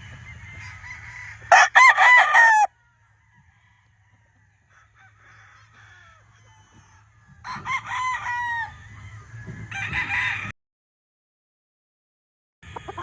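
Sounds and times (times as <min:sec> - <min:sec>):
faint crowing of other roosters: 0:00.0 - 0:10.6
rooster crowing loudly: 0:00.6 - 0:02.7, 0:07.5 - 0:08.7, 0:09.7 - 0:10.5.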